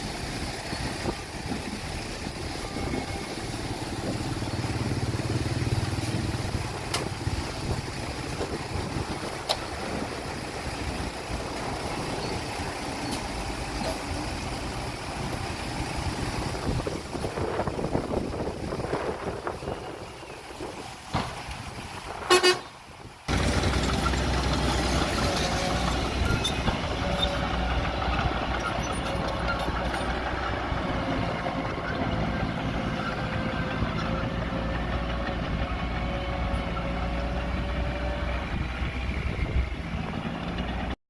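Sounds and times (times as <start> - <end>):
diesel engine running: 0.0 - 41.0
vehicle horn toot: 22.2 - 22.8.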